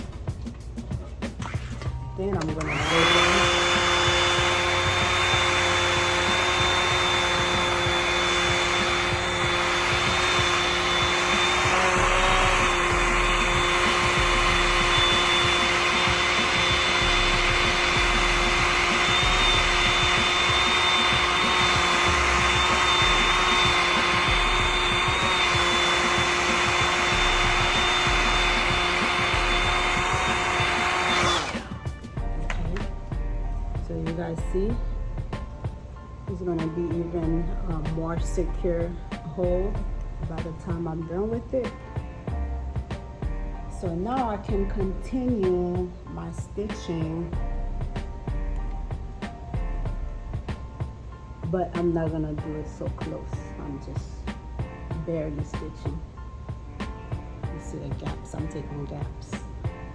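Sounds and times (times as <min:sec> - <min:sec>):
hair dryer blowing: 0:02.4 - 0:32.9.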